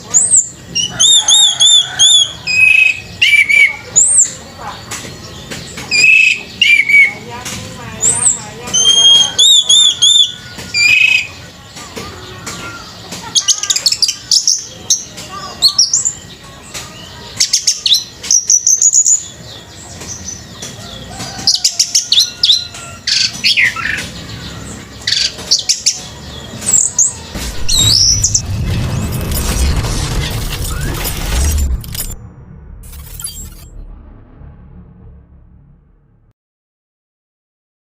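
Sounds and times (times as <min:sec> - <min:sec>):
thrush singing: 0:23.3 - 0:35.9
low rumbling noise: 0:27.3 - 0:36.4.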